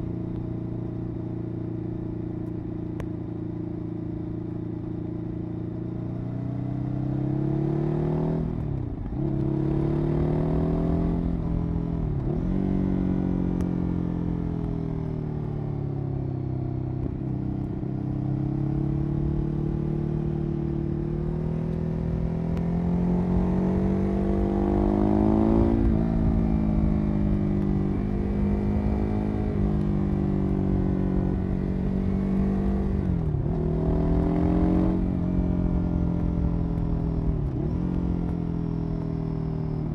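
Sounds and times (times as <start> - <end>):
motorcycle engine running: 8.4 - 39.9.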